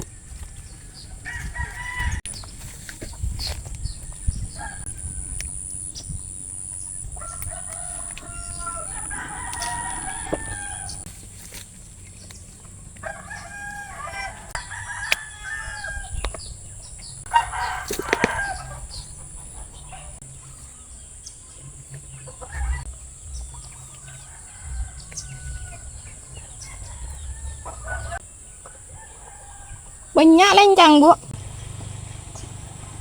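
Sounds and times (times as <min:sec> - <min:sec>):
rooster crowing: 0:00.6 - 0:02.2, 0:07.2 - 0:11.0, 0:13.0 - 0:16.2, 0:17.3 - 0:19.0, 0:26.6 - 0:28.2, 0:28.9 - 0:30.1
chickens clucking: 0:12.3 - 0:29.4.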